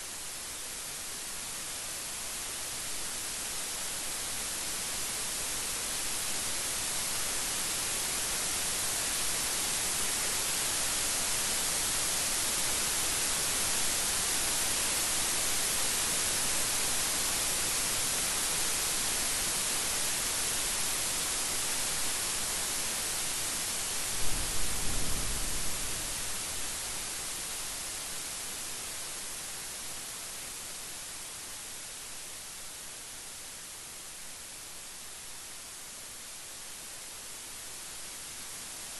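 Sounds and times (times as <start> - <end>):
heavy rain hissing: 2.8 - 32.2.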